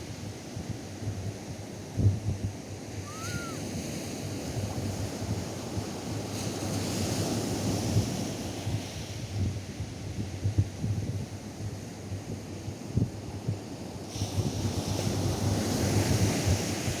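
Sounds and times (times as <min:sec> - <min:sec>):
surf washing onto beach: 0:03.0 - 0:03.7.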